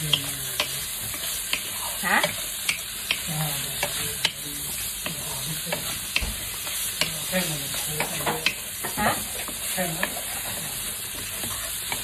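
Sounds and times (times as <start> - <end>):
meat and onion sizzling in pan: 0.0 - 12.0
wooden spatula scraping pan: 3.6 - 12.0.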